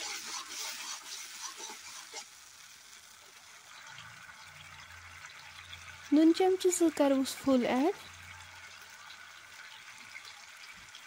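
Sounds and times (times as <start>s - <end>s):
ladle stirring and scraping: 0.0s - 2.4s
tomatoes sizzling in oil: 0.0s - 11.0s.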